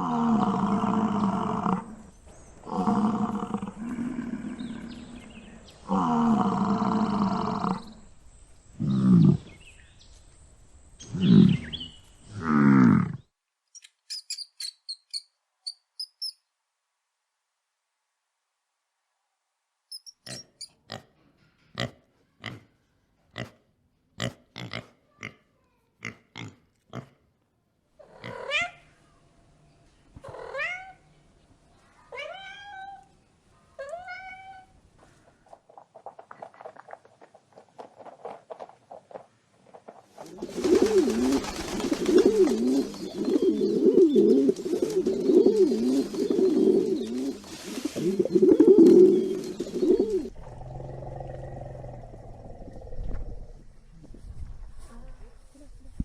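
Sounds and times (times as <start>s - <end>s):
rising animal calls: 40.3s - 53.5s.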